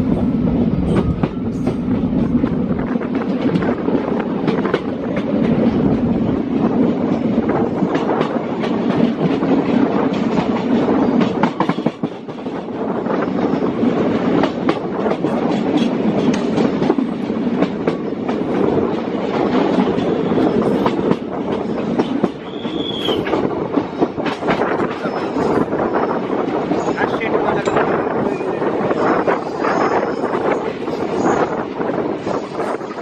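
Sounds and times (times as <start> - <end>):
train rumbling: 0.0 - 33.0
high squeal: 22.5 - 23.3.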